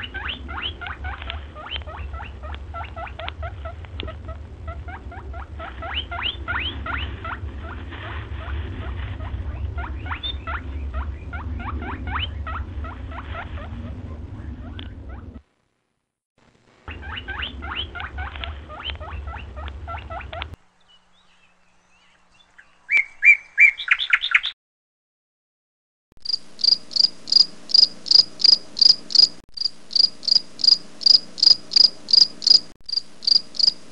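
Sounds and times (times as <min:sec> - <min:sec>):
chattering bird calls: 0:00.0 - 0:03.6, 0:04.9 - 0:07.5, 0:09.3 - 0:13.1, 0:16.9 - 0:20.5
low rumble: 0:00.0 - 0:15.4
high cricket-like chirp: 0:26.2 - 0:33.9.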